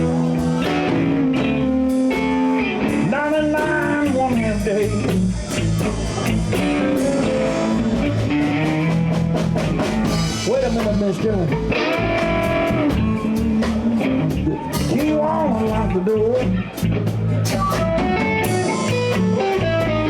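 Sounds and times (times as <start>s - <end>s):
electric guitar lead line bending: 0.0s - 20.0s
live blues band playing: 0.0s - 20.0s.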